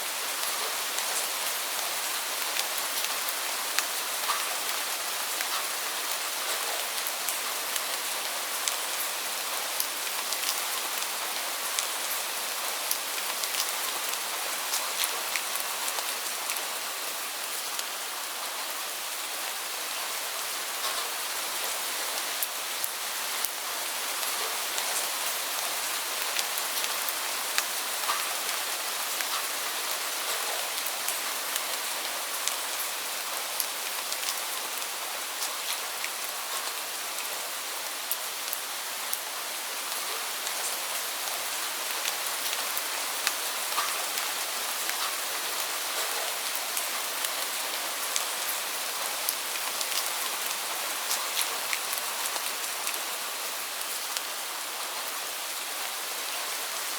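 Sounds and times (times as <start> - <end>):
heavy rain falling: 0.0 - 56.9
raindrops ticking on surfaces: 0.1 - 56.9.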